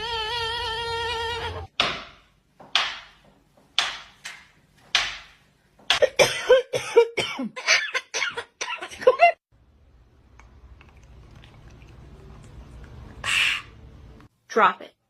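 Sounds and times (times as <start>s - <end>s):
person coughing: 6.0s - 9.2s.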